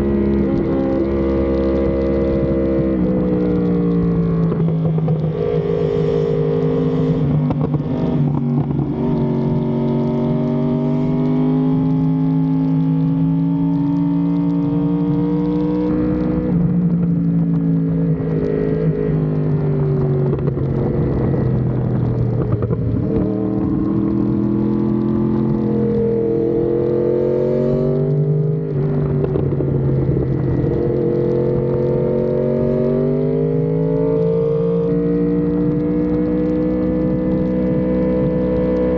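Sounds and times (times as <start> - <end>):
vehicle engine running: 4.2 - 13.6, 19.9 - 35.0.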